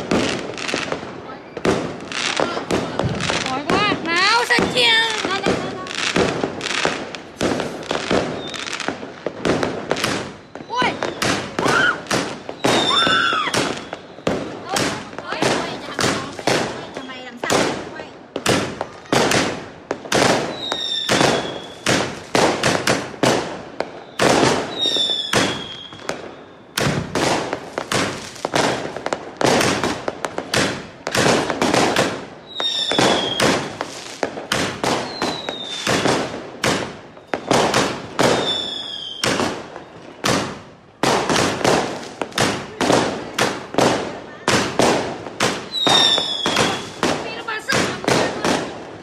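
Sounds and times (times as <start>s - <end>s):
fireworks bursting: 0.0s - 49.0s
falling firework whistles: 7.4s - 9.0s, 9.8s - 14.5s, 20.4s - 22.7s, 23.8s - 29.0s, 32.4s - 40.5s, 45.6s - 47.2s.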